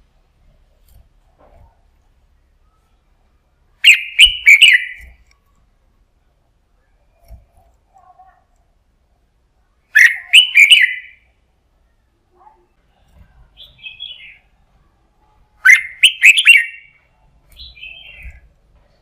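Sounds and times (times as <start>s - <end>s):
soft high bird twitter: 3.8s - 5.2s, 10.0s - 11.3s, 15.6s - 18.5s
bird singing phrases: 3.8s - 5.3s, 9.9s - 11.3s, 12.7s - 18.5s.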